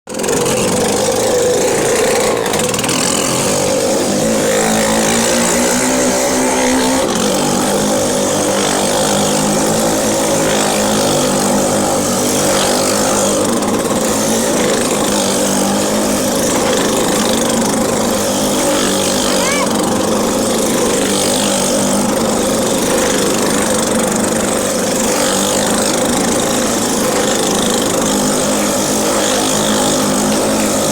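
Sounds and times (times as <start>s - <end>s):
motorcycle engines running: 0.1s - 30.9s.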